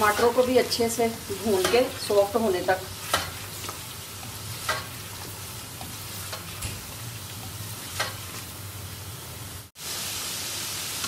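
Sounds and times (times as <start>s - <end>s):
spatula scraping pan: 0.0s - 8.6s
meat and tomatoes sizzling: 0.0s - 11.0s.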